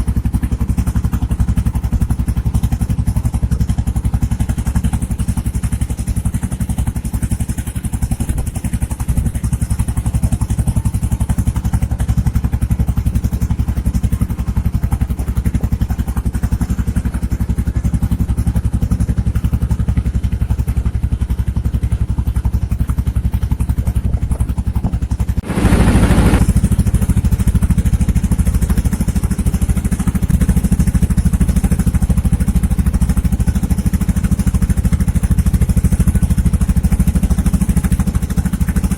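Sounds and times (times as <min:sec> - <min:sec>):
boat engine running: 0:00.0 - 0:38.9
brief rush of noise: 0:25.4 - 0:26.4.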